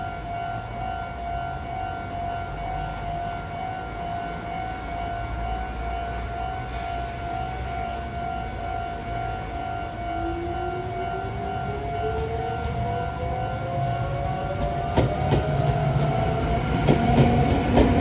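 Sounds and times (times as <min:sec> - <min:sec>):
electric train whine and rumble: 0:00.0 - 0:18.0.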